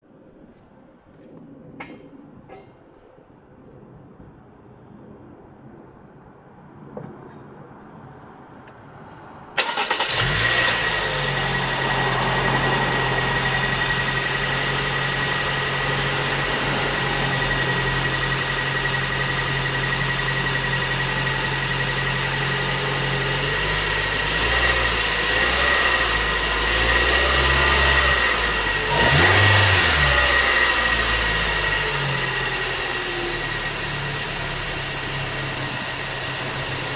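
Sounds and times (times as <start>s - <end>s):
car engine starting and idling: 9.4s - 36.9s.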